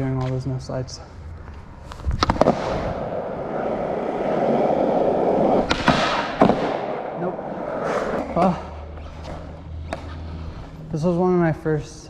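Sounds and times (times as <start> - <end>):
skateboard wheels rolling: 1.5 - 10.3
skateboard clacks: 2.2 - 8.3.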